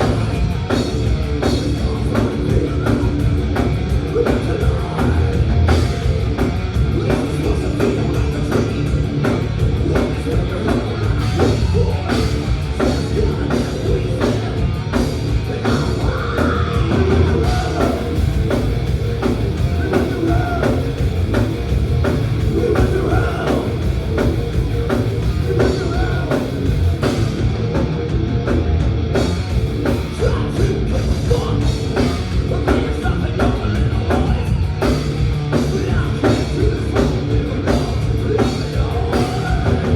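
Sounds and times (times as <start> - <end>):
live thrash metal band: 0.0 - 39.9
person singing: 15.4 - 18.2, 19.6 - 21.0, 22.4 - 23.8.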